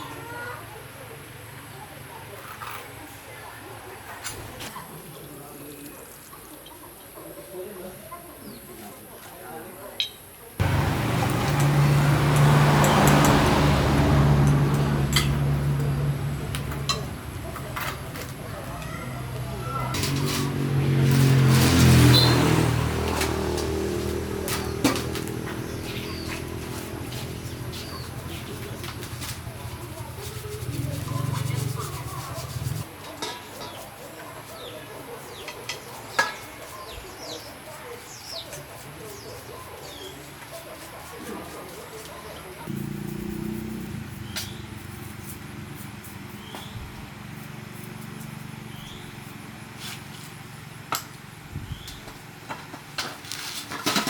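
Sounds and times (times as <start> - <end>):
engine hum: 10.6 - 33.1, 42.3 - 54.0.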